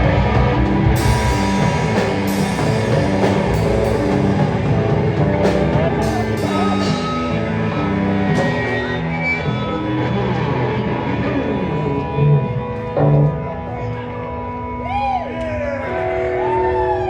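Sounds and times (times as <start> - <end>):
drum kit: 0.0 - 10.0
bass guitar: 0.0 - 17.0
distorted electric guitar: 0.0 - 17.0.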